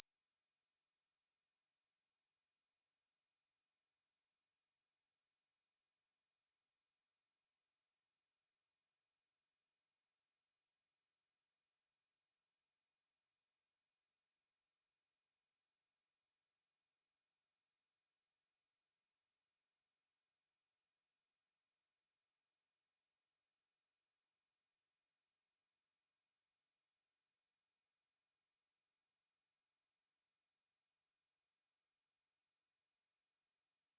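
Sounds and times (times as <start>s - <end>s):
high-pitched sine-wave test tone: 0.0s - 33.9s.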